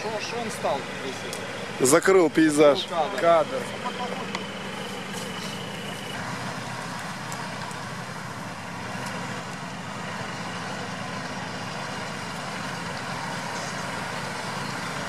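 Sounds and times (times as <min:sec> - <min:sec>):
engine running at low revs: 0:00.0 - 0:15.0.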